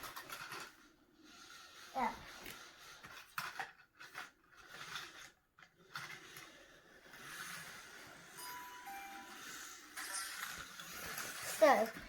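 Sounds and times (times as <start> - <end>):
handling scrapes and clicks: 0.0 - 8.4
toy train running on plastic track: 0.0 - 12.0.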